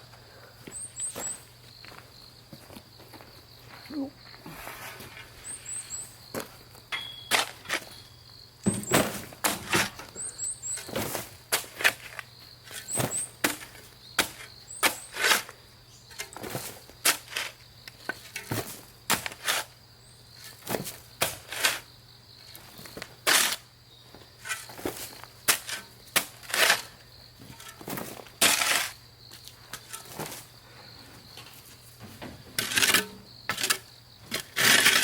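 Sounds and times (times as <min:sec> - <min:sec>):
shovel digging into ground: 0:25.5 - 0:26.9, 0:27.5 - 0:29.0, 0:32.6 - 0:35.0.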